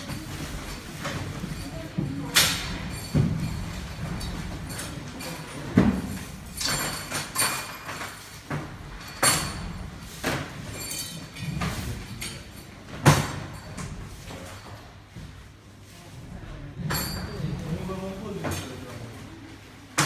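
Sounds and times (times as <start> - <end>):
hard objects knocking and clinking: 0.0 - 14.6.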